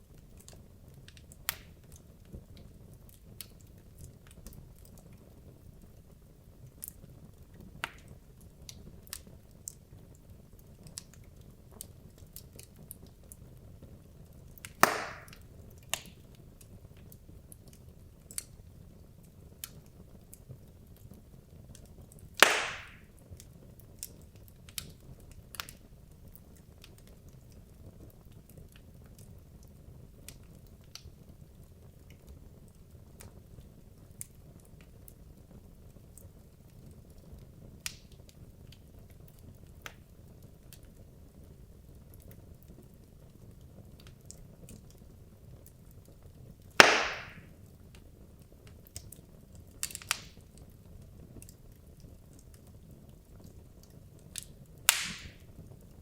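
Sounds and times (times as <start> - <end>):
fire crackles and pops: 0.0 - 56.0
fire rumbling: 0.0 - 56.0
loud sharp wood cracks: 14.7 - 15.4, 22.4 - 23.0, 46.8 - 47.5, 54.9 - 55.4.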